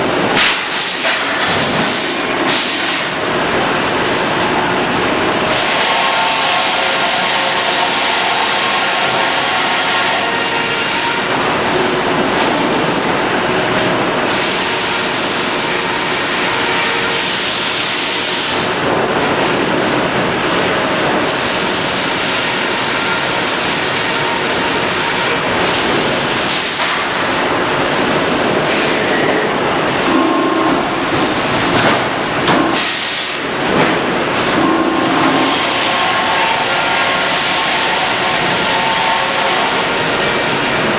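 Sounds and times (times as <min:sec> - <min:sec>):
sawmill machinery running: 0:00.0 - 0:40.9
machinery hiss: 0:05.5 - 0:11.3, 0:28.4 - 0:40.9.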